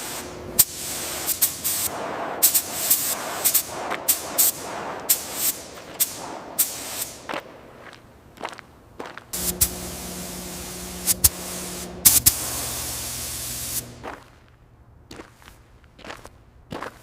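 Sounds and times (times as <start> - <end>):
air tool hissing: 0.0 - 7.2, 9.4 - 14.0
low hum: 9.4 - 14.1.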